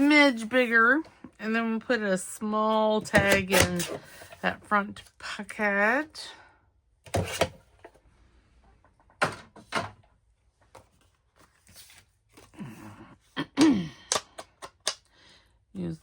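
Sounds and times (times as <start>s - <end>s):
paper rustling: 10.7s - 12.6s.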